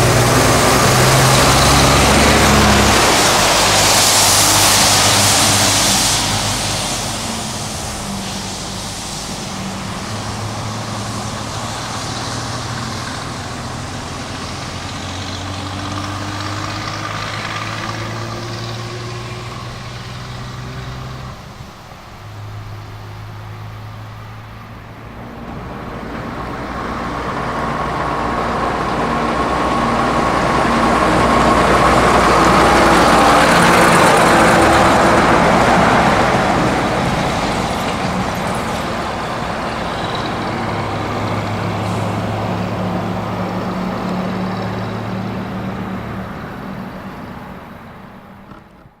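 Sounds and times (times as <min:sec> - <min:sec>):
truck engine driving by: 0:00.0 - 0:49.0.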